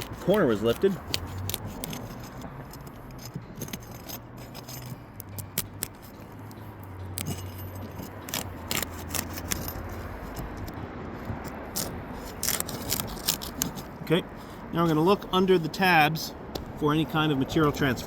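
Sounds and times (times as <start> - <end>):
tool prying up shingles: 0.0 - 6.4, 7.1 - 14.0.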